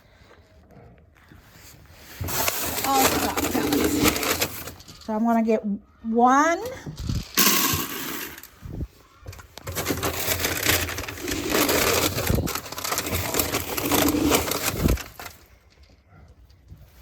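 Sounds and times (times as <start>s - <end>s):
feed pellets rattling: 2.3s - 5.2s, 7.0s - 8.6s, 9.6s - 15.8s.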